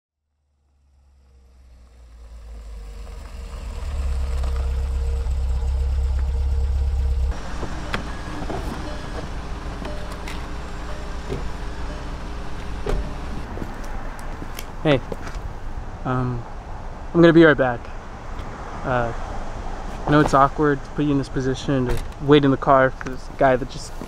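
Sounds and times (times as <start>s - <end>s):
car engine running: 0.4s - 16.0s.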